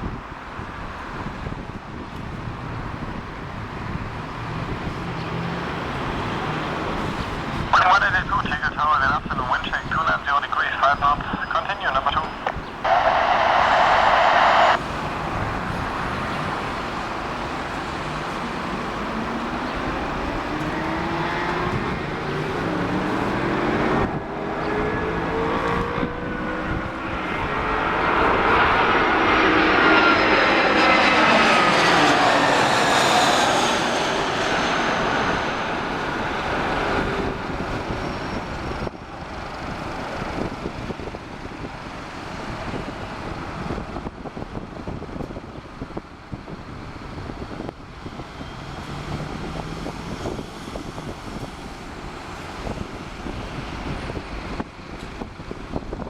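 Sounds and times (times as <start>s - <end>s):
jet airliner engines roaring: 0.0s - 56.0s
engine whining tones: 10.2s - 15.3s, 17.9s - 38.9s.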